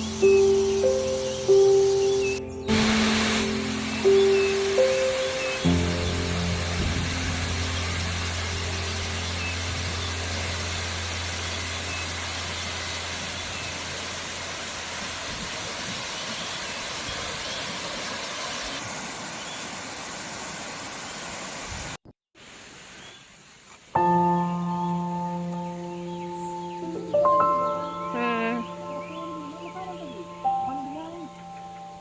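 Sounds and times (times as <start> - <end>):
waterfall rushing: 0.0 - 21.6
low hum: 2.4 - 14.7.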